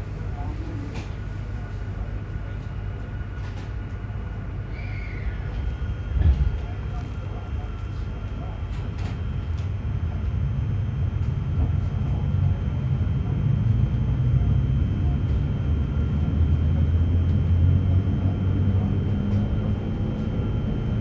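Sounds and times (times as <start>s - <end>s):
train motor roar: 5.2s - 21.0s.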